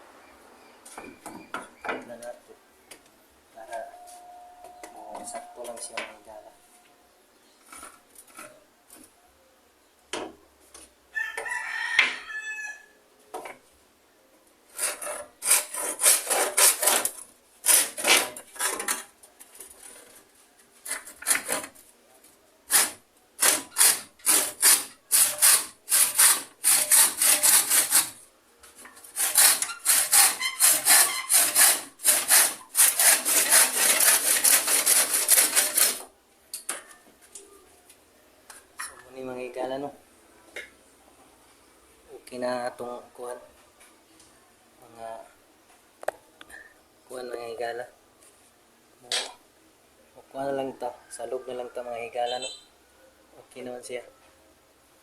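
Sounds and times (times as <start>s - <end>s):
rooster crowing: 11.1s - 13.0s, 50.6s - 52.1s
handsaw cutting wood: 14.7s - 18.8s, 22.7s - 28.2s, 29.0s - 36.1s.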